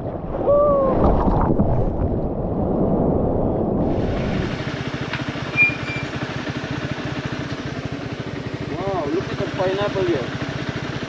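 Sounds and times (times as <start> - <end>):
muffled low rumble: 0.0 - 4.7
motorcycle engine idling: 4.5 - 11.0.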